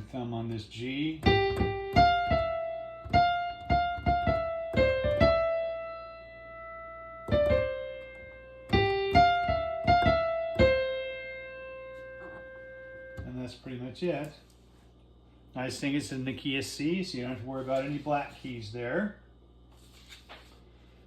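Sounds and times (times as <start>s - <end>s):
slow piano melody: 1.2s - 13.3s.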